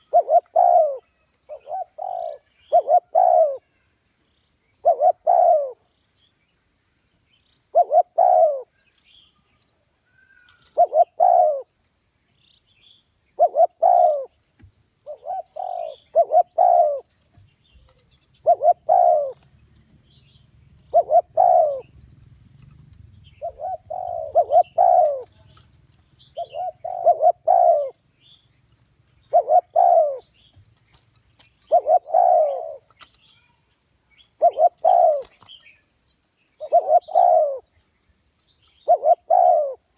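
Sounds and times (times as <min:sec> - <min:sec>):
dove cooing: 0:00.0 - 0:03.8, 0:04.8 - 0:05.9, 0:07.7 - 0:08.7, 0:10.2 - 0:11.8, 0:13.3 - 0:14.4, 0:15.0 - 0:17.2, 0:17.8 - 0:19.9, 0:20.8 - 0:28.1, 0:29.2 - 0:33.1, 0:34.3 - 0:35.7, 0:36.5 - 0:37.7, 0:38.7 - 0:39.9
faint high bird chirps: 0:00.0 - 0:22.0, 0:22.7 - 0:39.9.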